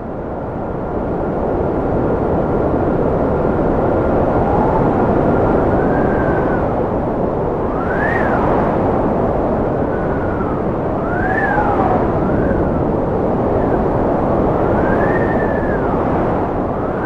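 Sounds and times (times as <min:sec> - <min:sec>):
high wind whistle: 0:00.0 - 0:17.0
wind blowing hard: 0:00.0 - 0:17.0.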